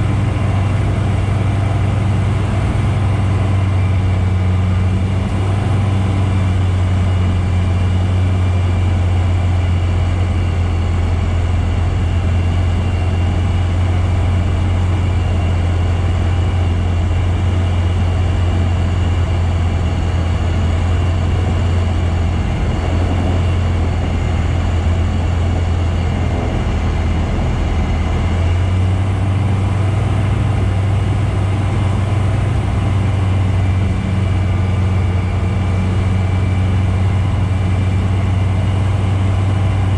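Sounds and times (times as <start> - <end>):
light aircraft engine drone: 0.0 - 39.9
rushing air: 18.8 - 39.9.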